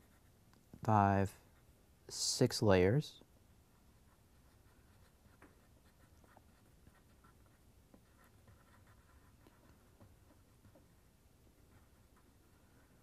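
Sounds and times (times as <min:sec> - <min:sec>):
pencil scratching on paper: 0:00.0 - 0:00.4, 0:03.8 - 0:10.9.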